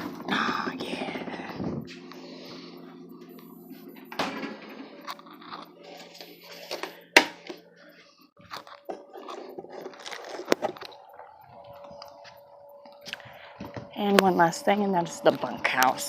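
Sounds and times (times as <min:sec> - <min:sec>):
low steady hum: 0:00.0 - 0:16.0
close rustling and handling: 0:08.4 - 0:13.2.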